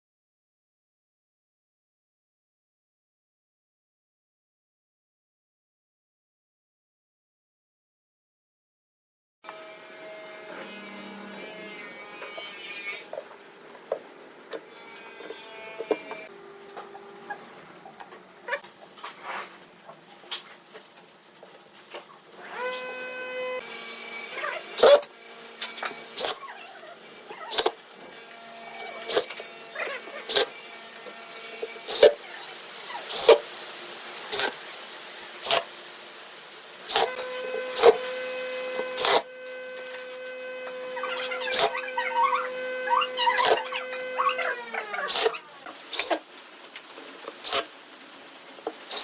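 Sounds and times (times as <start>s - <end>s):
small electric motor whirring: 9.5s - 18.6s, 22.4s - 33.4s, 36.9s - 46.2s.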